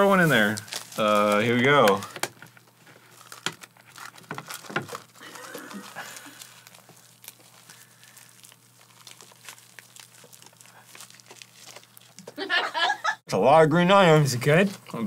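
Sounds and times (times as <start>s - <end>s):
seaweed roll crunching while chewed: 2.6s - 12.3s.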